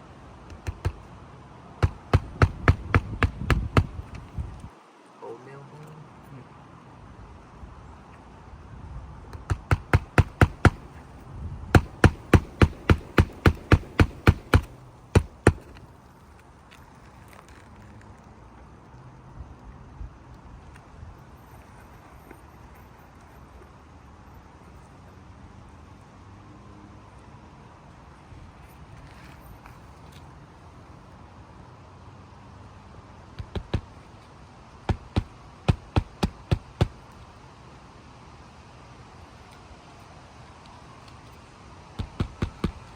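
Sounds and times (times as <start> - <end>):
hammer driving nails into shingles: 0.5 - 1.1, 1.8 - 4.3, 9.4 - 11.1, 11.8 - 15.9, 33.4 - 34.0, 34.9 - 37.1, 42.0 - 42.9.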